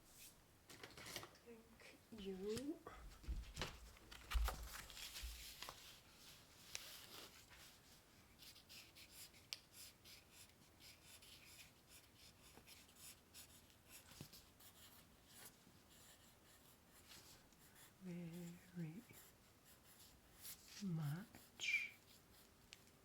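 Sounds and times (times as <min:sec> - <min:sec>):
pen scratching on paper: 0:08.4 - 0:22.5.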